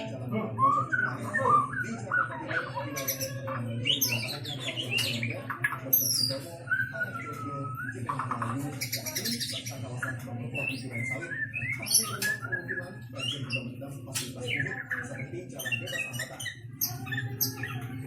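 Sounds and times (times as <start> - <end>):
bird singing whistles and chirps: 0.0 - 17.8.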